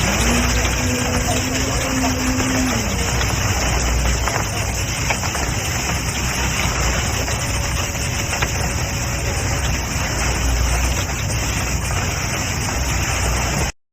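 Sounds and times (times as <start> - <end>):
low engine hum: 0.0 - 13.8
wet concrete pouring: 0.0 - 13.8.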